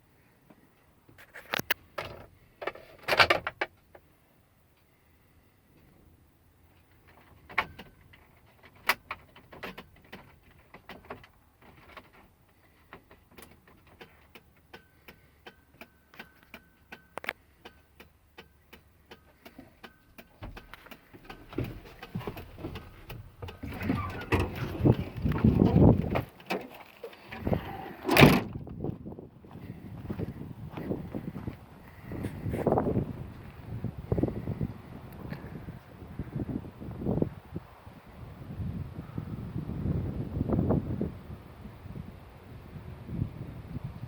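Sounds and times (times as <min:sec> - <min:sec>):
sharp clicks and knocks: 0:12.9 - 0:27.0
clattering and thumps: 0:20.2 - 0:28.8.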